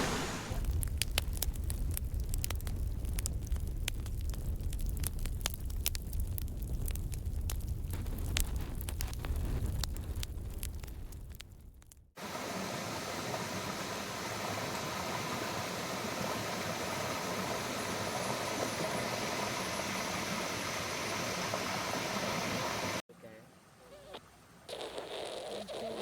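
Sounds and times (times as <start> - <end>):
waterfall rushing: 0.0 - 0.6, 12.2 - 23.0
crackling: 0.0 - 12.2, 23.9 - 26.0.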